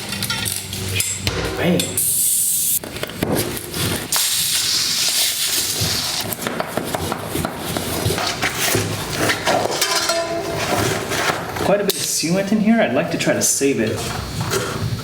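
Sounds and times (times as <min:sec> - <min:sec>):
air hissing from tire: 0:02.0 - 0:02.8.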